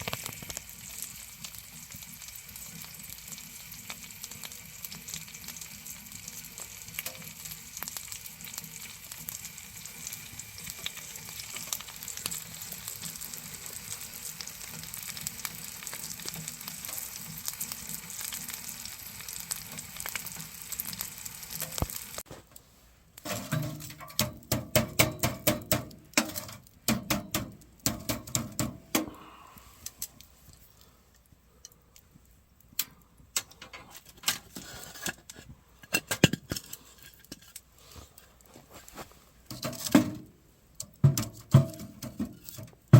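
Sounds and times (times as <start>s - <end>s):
wood fire crackling in a stove: 0.0s - 42.9s
loud irregular knocks and clatters: 23.2s - 29.1s, 41.0s - 42.9s.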